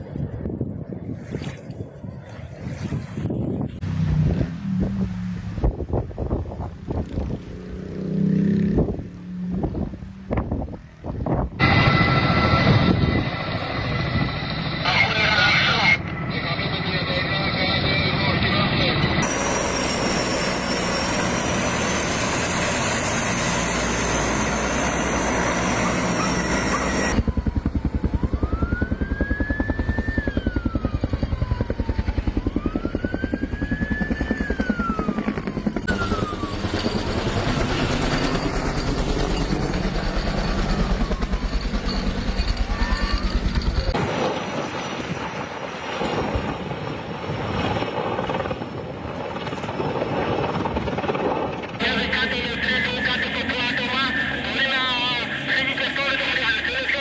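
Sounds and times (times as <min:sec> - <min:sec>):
dense noisy roar: 0:03.4 - 0:29.2
helicopter rotor chop: 0:09.6 - 0:57.0
siren wailing: 0:11.6 - 0:16.0, 0:17.8 - 0:44.1.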